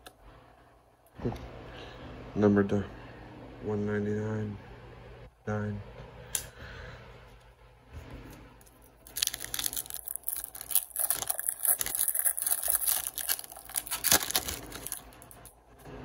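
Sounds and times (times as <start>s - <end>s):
foil wrapper crinkling and tearing: 9.0s - 15.5s.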